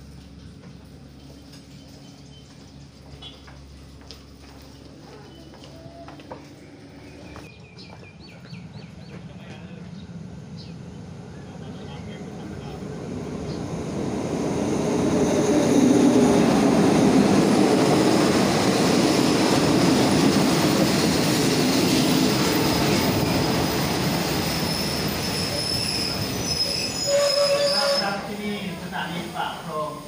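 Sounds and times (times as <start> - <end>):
train wheels rumbling on rails: 0.0 - 30.0
high wheel squeal: 24.2 - 28.4.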